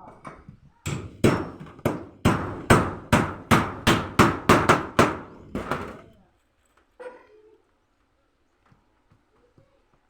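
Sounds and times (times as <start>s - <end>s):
hammer striking: 0.0s - 6.0s.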